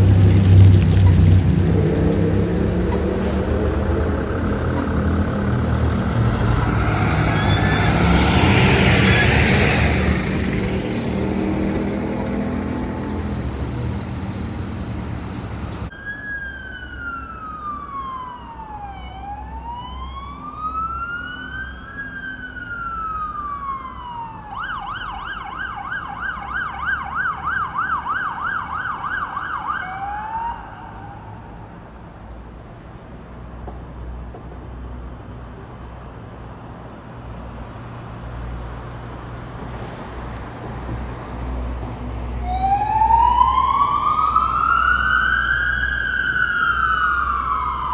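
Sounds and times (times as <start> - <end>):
low engine rumble: 0.0 - 15.9
fire truck siren wailing and yelping: 0.0 - 31.7, 42.4 - 47.9.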